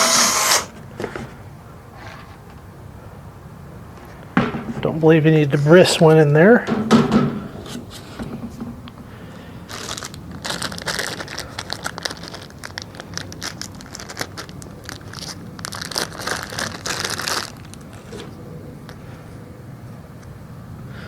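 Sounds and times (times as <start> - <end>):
plastic crinkling and rustling: 9.6 - 19.0.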